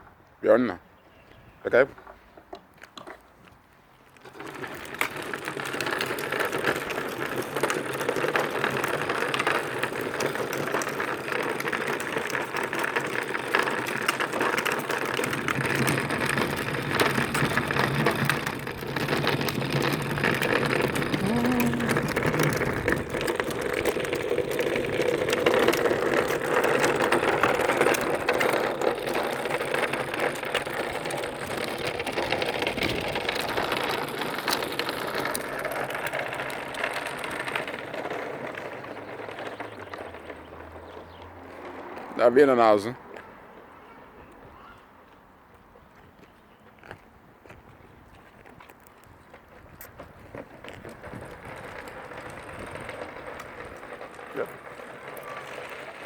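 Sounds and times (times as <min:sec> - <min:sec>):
tractor motor and gears running: 0:49.6 - 0:54.6.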